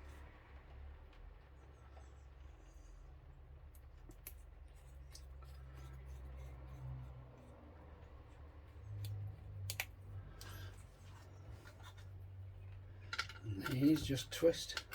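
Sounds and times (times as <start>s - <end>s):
clicks of small parts handled: 13.0s - 14.9s.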